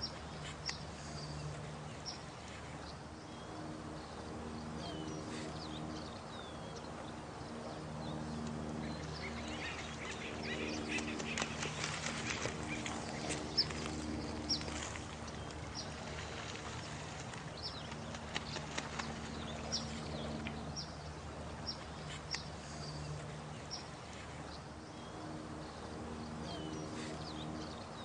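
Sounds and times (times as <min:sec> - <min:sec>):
rushing water: 0:08.9 - 0:24.9.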